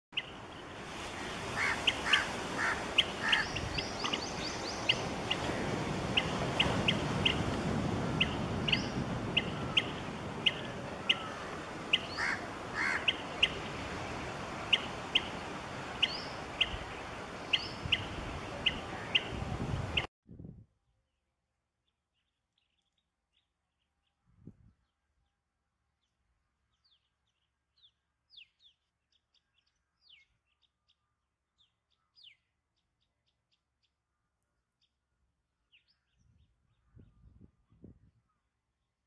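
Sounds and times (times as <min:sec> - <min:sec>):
birds chirping: 0:00.2 - 0:07.5, 0:08.1 - 0:20.1
longer lower bird calls: 0:00.2 - 0:07.5, 0:08.2 - 0:19.3.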